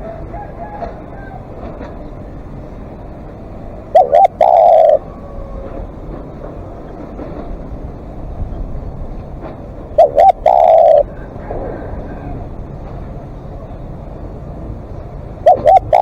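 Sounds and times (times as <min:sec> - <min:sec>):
dove cooing: 0:03.8 - 0:05.8, 0:09.9 - 0:12.5, 0:15.4 - 0:16.0.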